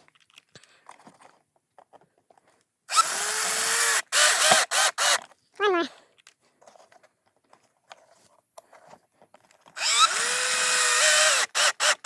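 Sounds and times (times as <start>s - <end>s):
cordless drill motor spinning: 2.9s - 5.3s, 9.8s - 12.0s.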